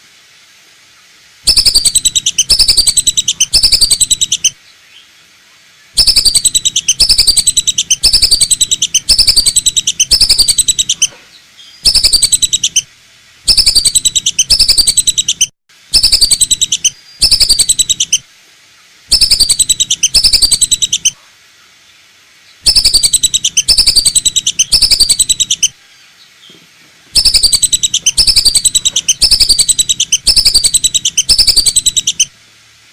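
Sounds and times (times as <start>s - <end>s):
duck whistling calls: 1.5s - 4.5s, 6.0s - 11.2s, 11.9s - 12.8s, 13.5s - 18.2s, 19.1s - 21.2s, 22.7s - 25.7s, 27.2s - 32.3s.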